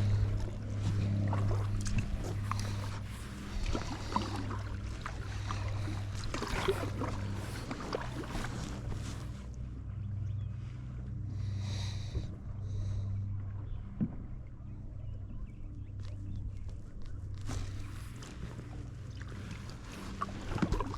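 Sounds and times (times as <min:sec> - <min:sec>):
paddle splashing and dripping: 0:00.0 - 0:09.4, 0:17.3 - 0:20.9
steady low hum: 0:00.0 - 0:20.9.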